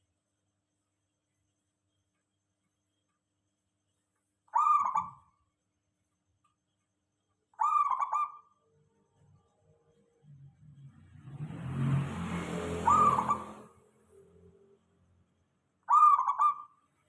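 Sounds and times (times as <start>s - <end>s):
dove cooing: 4.5s - 5.3s, 7.6s - 8.5s, 12.8s - 13.6s, 15.9s - 16.7s.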